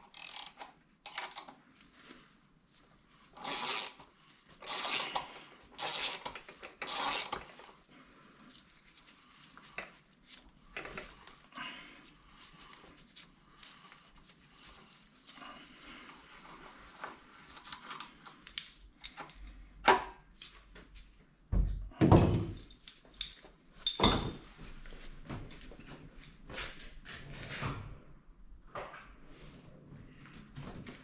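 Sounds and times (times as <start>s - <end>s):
metal tools clinking: 18.4s - 19.4s, 22.4s - 24.5s.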